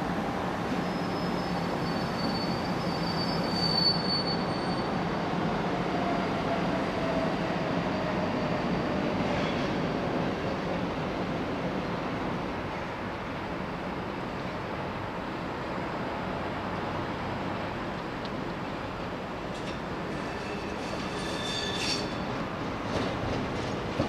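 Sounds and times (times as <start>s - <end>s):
train rolling rumble: 0.1s - 24.0s
train wheels squealing: 0.7s - 10.3s, 19.6s - 22.5s.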